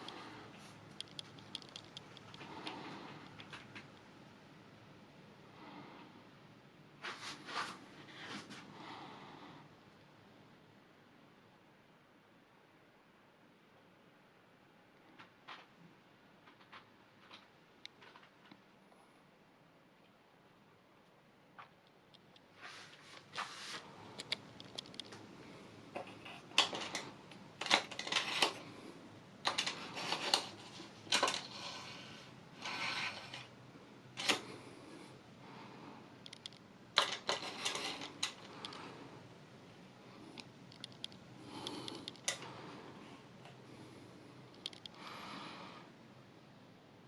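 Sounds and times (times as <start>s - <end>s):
hard objects clicking and knocking: 0.9s - 4.0s, 25.9s - 28.7s, 29.4s - 33.5s, 34.2s - 34.5s, 36.3s - 38.9s
rustling scrapes: 7.0s - 8.7s, 22.5s - 24.1s, 29.5s - 33.5s.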